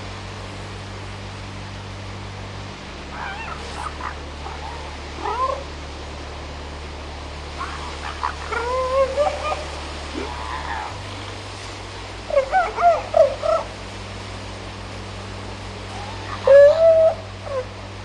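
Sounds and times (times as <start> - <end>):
seals wailing: 3.1 - 5.7, 7.6 - 11.2, 12.2 - 13.9, 15.9 - 17.8.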